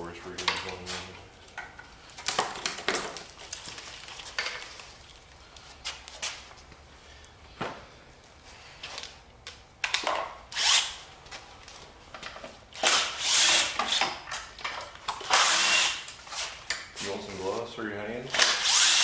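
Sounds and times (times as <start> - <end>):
handheld power tool running: 12.8 - 14.0, 15.3 - 16.1, 18.4 - 19.0.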